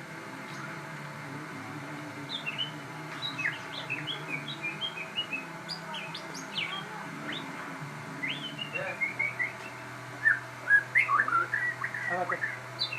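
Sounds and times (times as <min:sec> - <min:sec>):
steady low hum: 0:00.0 - 0:12.9
songbird whistling: 0:02.3 - 0:07.5, 0:08.2 - 0:12.9.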